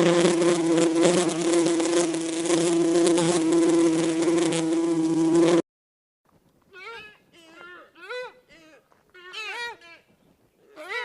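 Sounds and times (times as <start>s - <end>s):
insect buzzing: 0.0s - 5.6s.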